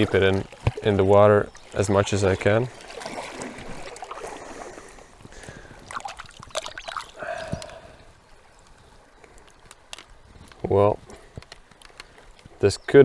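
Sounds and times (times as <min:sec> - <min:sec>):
stream water splashing: 0:00.0 - 0:10.2
water drips: 0:00.0 - 0:13.0.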